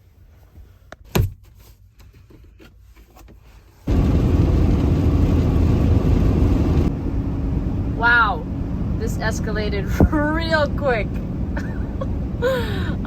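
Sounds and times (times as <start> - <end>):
van engine and road noise: 2.7 - 13.0.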